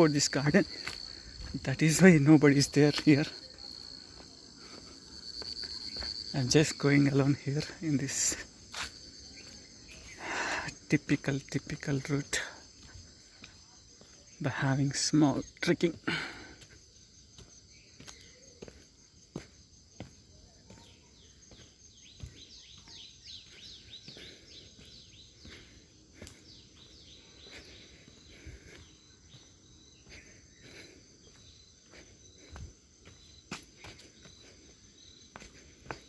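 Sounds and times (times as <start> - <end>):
faint footsteps on a path: 0.0 - 36.0
high insect drone: 0.0 - 36.0
bird chirping: 20.5 - 36.0.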